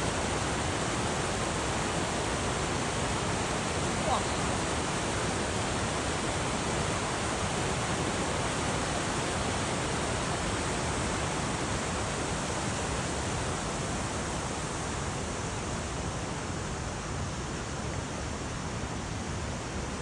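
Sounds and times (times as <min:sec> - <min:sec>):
mountain stream rushing: 0:00.0 - 0:20.0.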